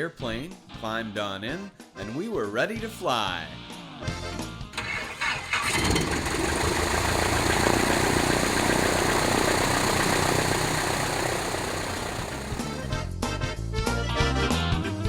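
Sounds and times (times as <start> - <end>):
propeller plane engine running: 4.8 - 13.0.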